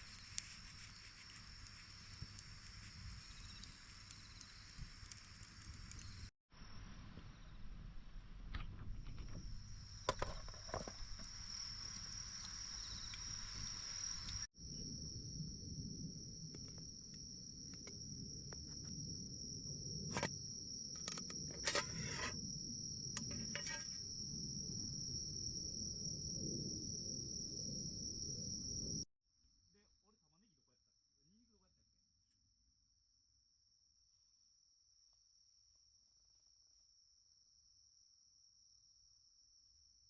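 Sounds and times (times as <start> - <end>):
insects trilling: 0.0 - 6.3, 9.8 - 29.0.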